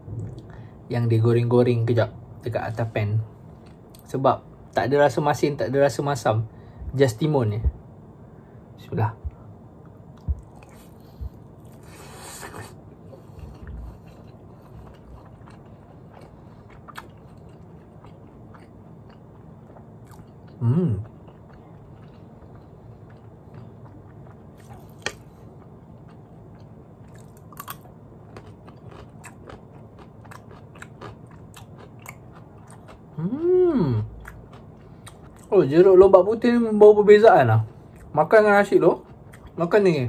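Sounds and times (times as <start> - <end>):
chewing crunchy food: 9.8 - 33.4, 34.1 - 35.8, 37.6 - 39.8
person humming mm: 20.6 - 21.0, 33.2 - 34.1.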